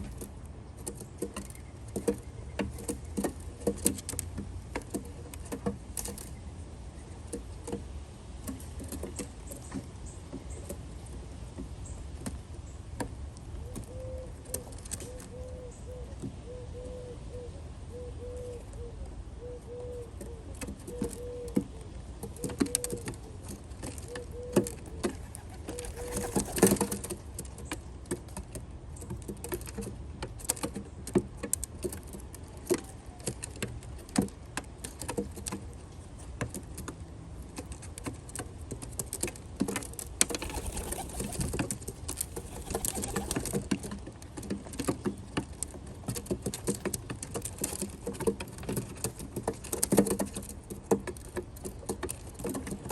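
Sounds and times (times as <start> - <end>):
pigeons pecking with quick taps: 0.0 - 6.4, 20.6 - 52.9
pigeons cooing: 13.6 - 23.4, 24.1 - 27.0, 40.3 - 43.7.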